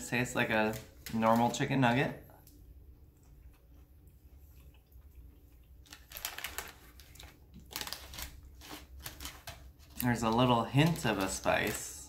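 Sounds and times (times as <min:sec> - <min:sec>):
faint low room hum: 0:00.0 - 0:12.0
crunchy chewing: 0:03.1 - 0:09.6.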